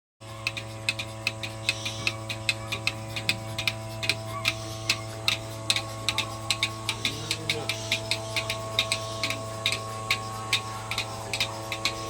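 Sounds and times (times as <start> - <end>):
milking machine pulsator clicking: 0.2 - 12.0
petrol engine humming: 0.2 - 12.0.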